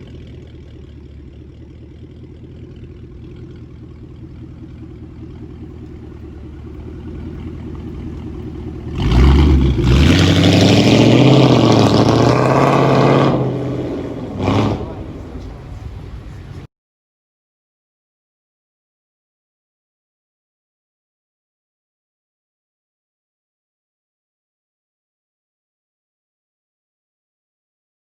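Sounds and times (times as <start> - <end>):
car engine idling and revving: 0.0 - 16.7.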